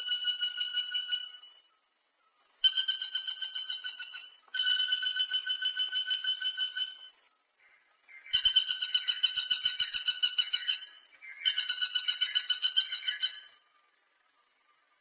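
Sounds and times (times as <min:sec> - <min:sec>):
woodpecker calling: 0:00.0 - 0:01.7, 0:02.6 - 0:13.7.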